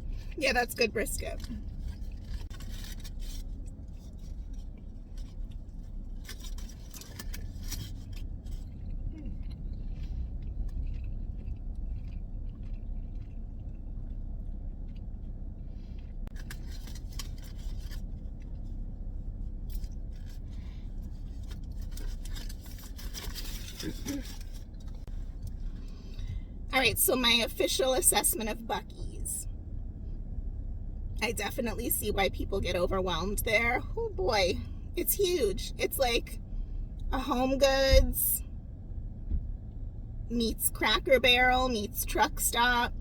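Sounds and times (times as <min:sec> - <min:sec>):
vehicle cabin rumble: 0:00.0 - 0:43.0
food rustling and clicks: 0:16.3 - 0:18.6, 0:19.6 - 0:25.6.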